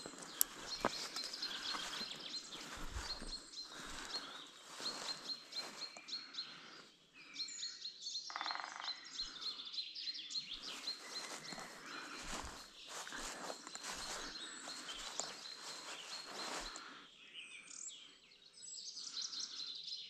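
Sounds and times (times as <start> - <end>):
footsteps through vegetation: 0.0 - 6.3, 10.6 - 16.9
small bird chirping: 0.0 - 6.6, 7.2 - 17.0.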